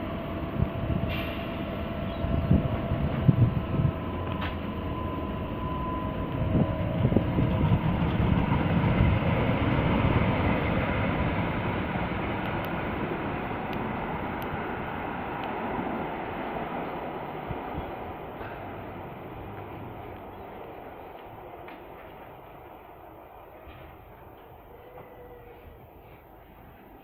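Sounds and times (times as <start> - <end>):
train running through station: 0.0 - 27.0.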